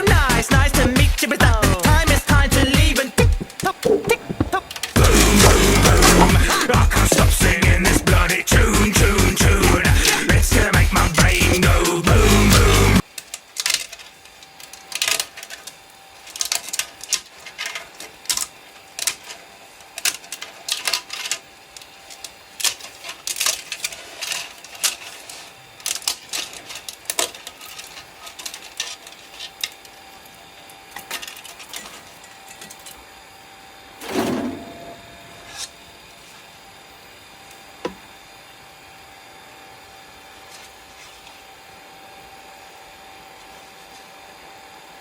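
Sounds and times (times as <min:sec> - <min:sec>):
faint steady whine: 0:00.0 - 0:45.0
low knock: 0:02.4 - 0:08.2.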